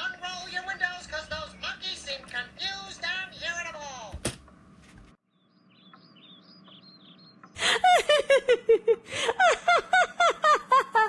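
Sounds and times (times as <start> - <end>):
faint high bird-like chirps: 5.3 - 7.6
person laughing: 7.6 - 11.0.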